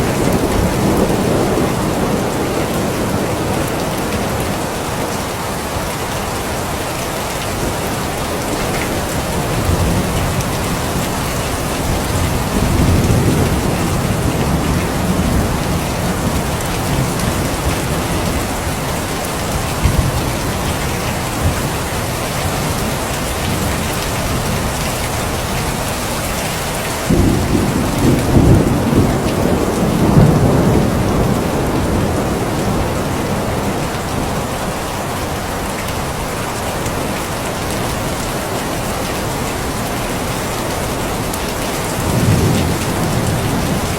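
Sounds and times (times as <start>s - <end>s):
thunder rumbling: 0.0s - 5.2s, 7.5s - 26.0s, 27.0s - 34.8s, 40.8s - 43.9s
steady rain falling: 0.0s - 43.9s.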